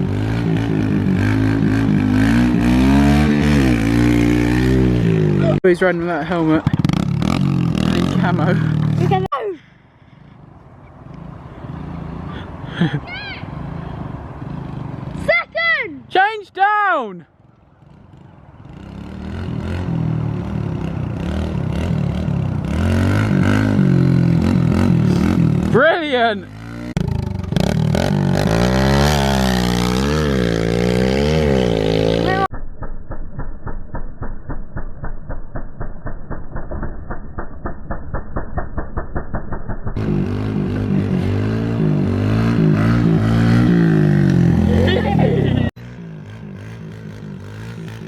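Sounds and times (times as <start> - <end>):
minibike engine revving: 0.0 - 5.6, 6.2 - 9.3, 17.8 - 32.5, 40.0 - 48.0.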